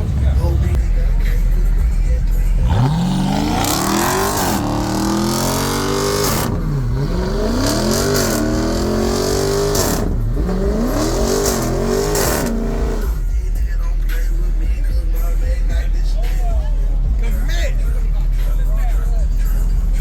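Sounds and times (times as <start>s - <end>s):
vehicle engine revving hard: 2.5s - 13.2s.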